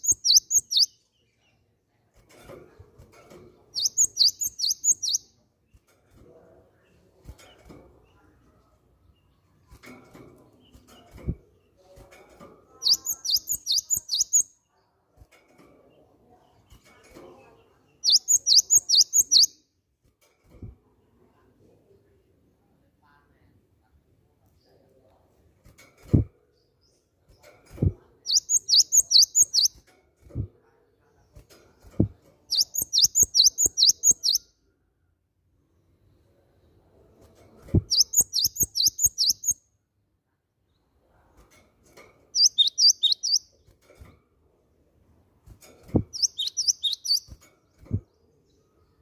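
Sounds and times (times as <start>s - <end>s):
bird singing quick high notes: 46.2s - 47.3s.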